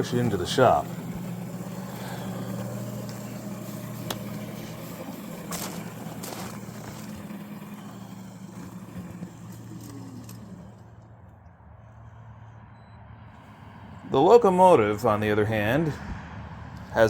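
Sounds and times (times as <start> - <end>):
electric motor humming: 0.0 - 11.4.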